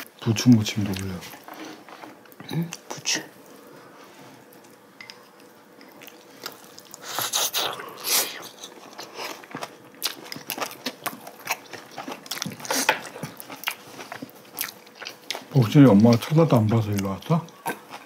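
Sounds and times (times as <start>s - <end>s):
wet chewing mouth sounds: 4.5s - 18.0s.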